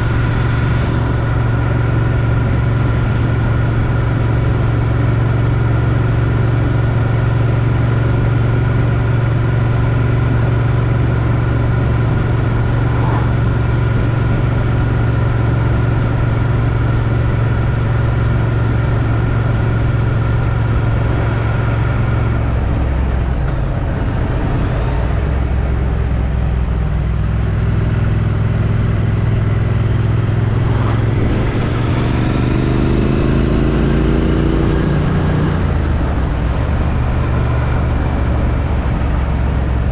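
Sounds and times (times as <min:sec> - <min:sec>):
motorcycle engine running: 0:00.0 - 0:26.5, 0:27.4 - 0:39.9
wind noise on microphone: 0:10.3 - 0:22.9, 0:30.1 - 0:34.0.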